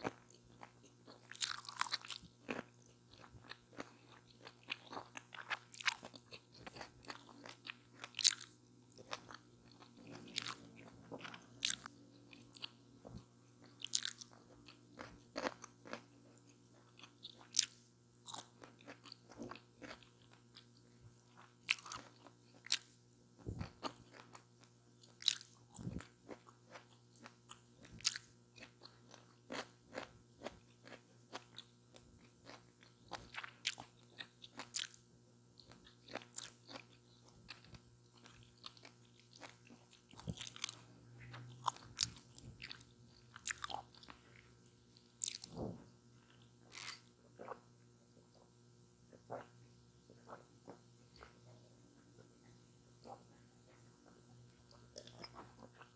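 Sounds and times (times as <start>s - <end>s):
crunchy food bites: 0.0s - 20.7s, 21.3s - 24.4s, 25.0s - 35.0s, 35.6s - 47.6s
wet chewing: 0.0s - 20.7s, 35.6s - 44.5s, 45.2s - 47.6s.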